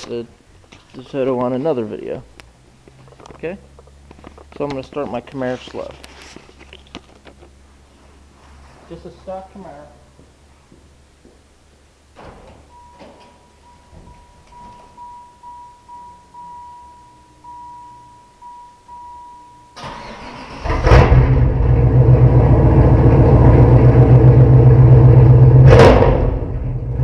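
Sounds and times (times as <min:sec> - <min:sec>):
car warning chime beeping: 0:12.7 - 0:20.4
car engine running: 0:20.6 - 0:27.0.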